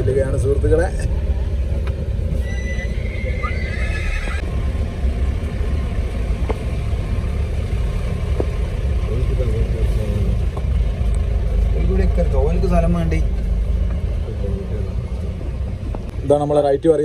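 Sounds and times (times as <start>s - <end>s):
steady low rumble: 0.0s - 17.0s
horse whinnying: 2.4s - 4.4s.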